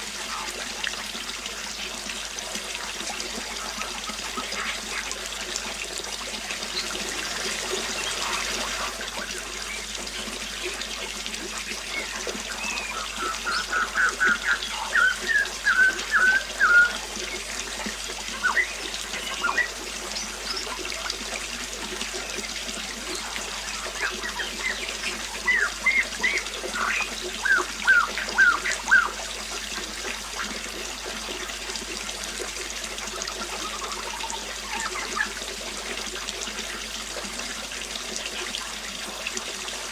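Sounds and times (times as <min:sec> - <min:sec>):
water trickling: 0:00.0 - 0:39.9
bird chirping: 0:11.8 - 0:17.5, 0:18.3 - 0:20.8, 0:23.1 - 0:29.2.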